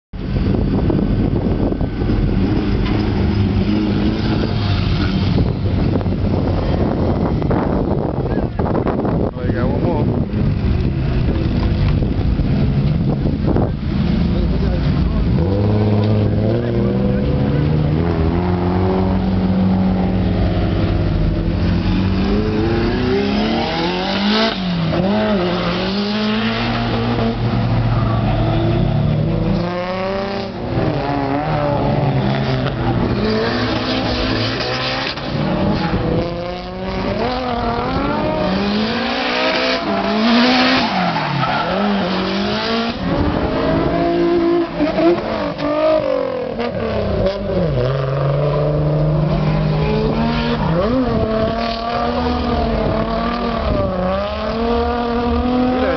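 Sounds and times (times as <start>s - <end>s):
car engines revving: 0.2s - 55.9s.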